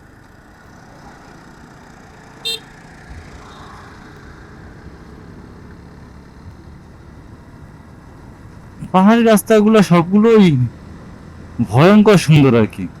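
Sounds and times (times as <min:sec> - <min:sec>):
motorcycle riding noise: 0:00.0 - 0:13.0
motorcycle horn toot: 0:02.4 - 0:02.8.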